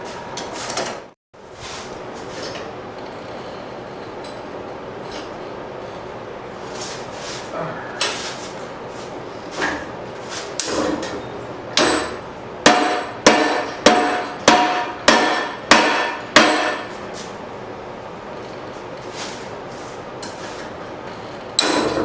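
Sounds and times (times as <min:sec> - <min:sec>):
hammer ringing on anvil: 0:11.8 - 0:16.9, 0:21.6 - 0:22.0.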